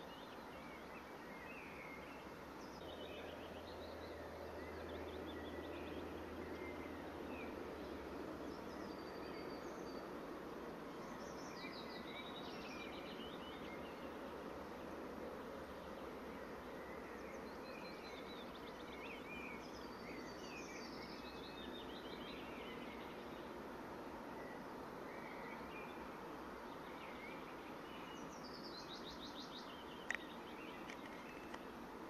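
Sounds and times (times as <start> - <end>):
songbirds singing: 0.0 - 32.0
steady outdoor hiss: 0.0 - 32.0.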